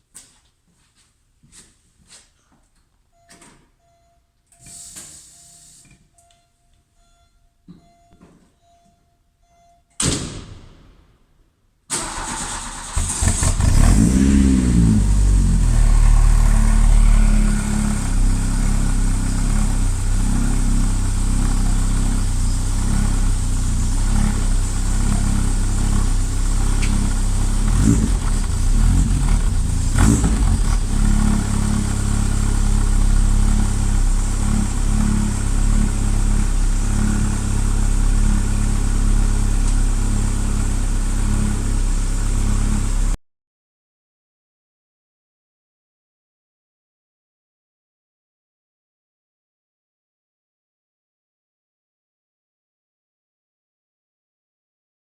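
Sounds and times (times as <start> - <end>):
car engine cranking and starting: 11.9 - 43.2
car engine idling: 12.0 - 43.2
car engine revving: 12.0 - 43.2.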